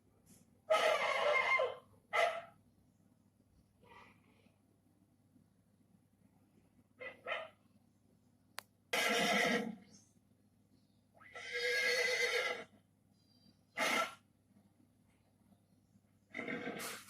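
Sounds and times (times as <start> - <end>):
horse neighing: 0.7 - 1.8, 9.0 - 9.8, 11.2 - 12.7, 13.8 - 14.2, 16.3 - 17.0.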